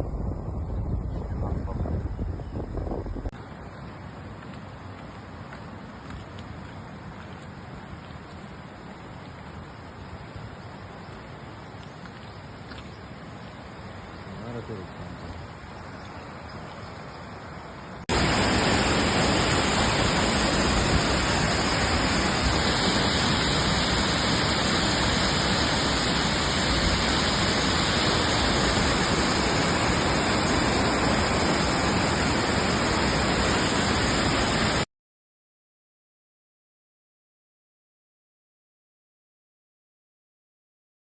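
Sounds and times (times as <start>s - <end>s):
waterfall rushing: 18.1s - 34.8s.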